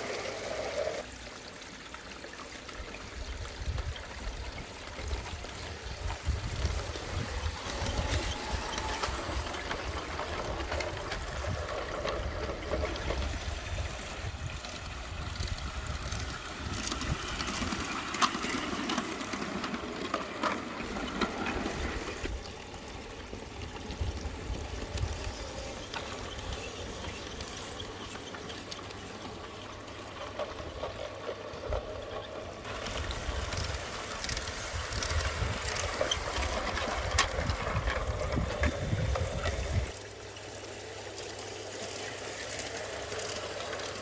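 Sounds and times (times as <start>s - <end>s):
model train running on track: 0.0s - 44.0s
wind rumbling on microphone: 3.2s - 18.8s, 20.8s - 28.2s, 31.5s - 40.0s.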